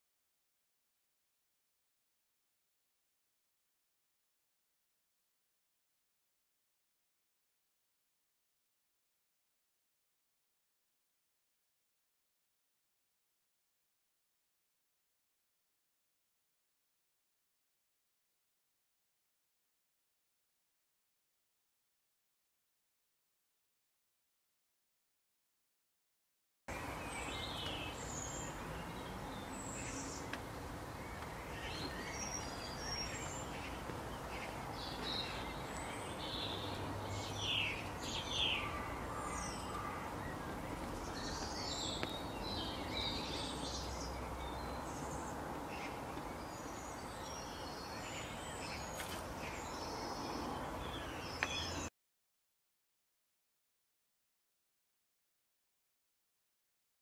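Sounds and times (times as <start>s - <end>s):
birds chirping and calling: 26.7s - 51.9s.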